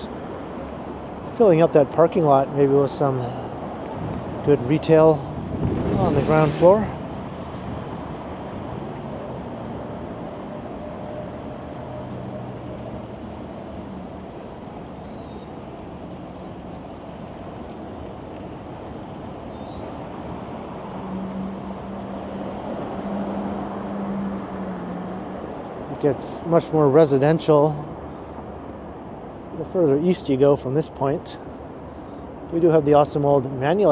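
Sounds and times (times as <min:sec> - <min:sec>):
low engine hum: 0:00.0 - 0:29.9
road traffic noise: 0:00.0 - 0:33.9.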